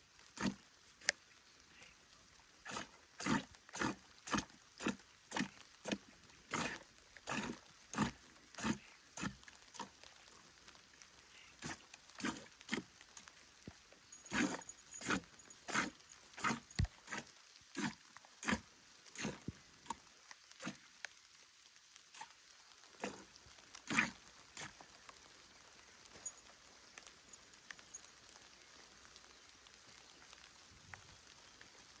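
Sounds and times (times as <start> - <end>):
light rain pattering: 0.0 - 32.0
milk squirting into a pail: 2.6 - 10.1, 11.6 - 13.0.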